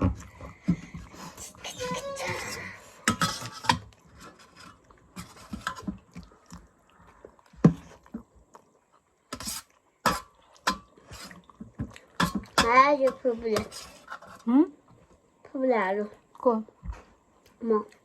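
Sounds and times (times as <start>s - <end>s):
people chewing noodles: 0.2s - 12.6s.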